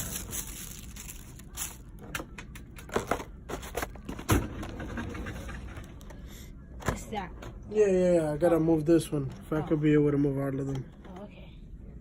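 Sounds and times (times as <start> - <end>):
handling rustling: 0.0 - 2.0.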